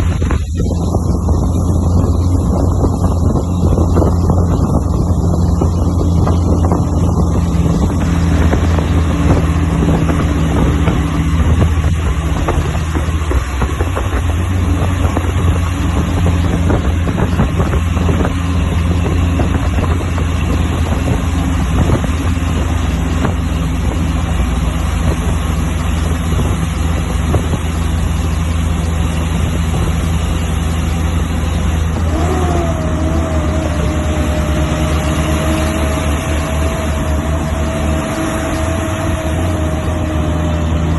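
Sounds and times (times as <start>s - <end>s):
truck diesel engine under load: 0.0s - 40.9s.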